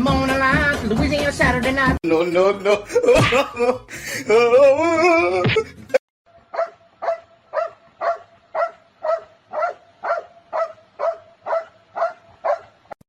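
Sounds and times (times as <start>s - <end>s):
dog barking: 6.5s - 13.0s.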